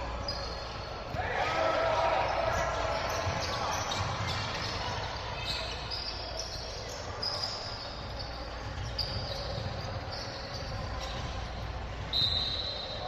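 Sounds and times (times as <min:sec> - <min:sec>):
sneakers squeaking on court: 0:00.0 - 0:01.2, 0:02.2 - 0:13.0
large hall ambience: 0:00.0 - 0:13.0
basketball dribbling: 0:08.4 - 0:12.1.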